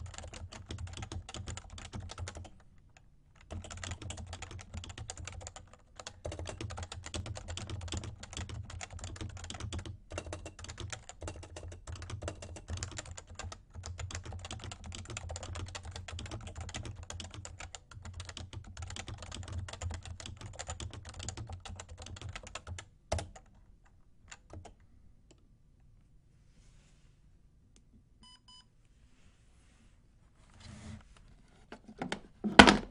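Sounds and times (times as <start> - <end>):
fast keyboard typing: 0.0 - 23.5.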